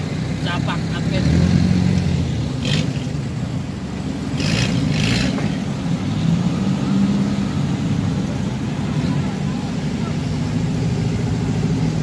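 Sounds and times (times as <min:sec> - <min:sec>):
off-road vehicle engines rumbling: 0:00.0 - 0:12.0.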